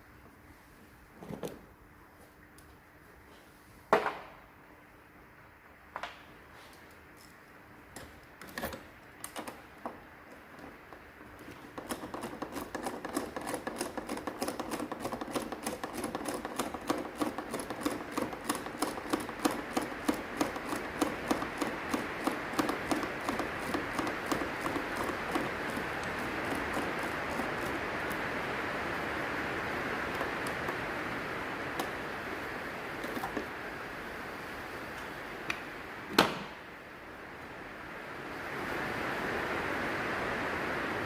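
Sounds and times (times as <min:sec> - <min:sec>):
fast mechanical clicks: 0:10.3 - 0:29.0, 0:29.6 - 0:32.0.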